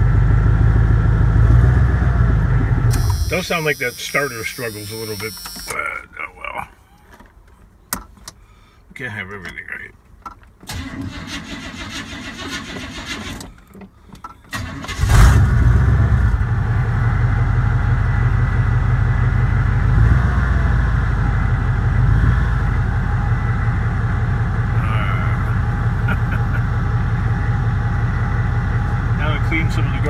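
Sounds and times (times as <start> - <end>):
car engine idling: 0.0 - 8.8, 16.0 - 30.0
engine starter cranking: 2.9 - 5.8, 10.6 - 15.6
person speaking: 3.2 - 6.9.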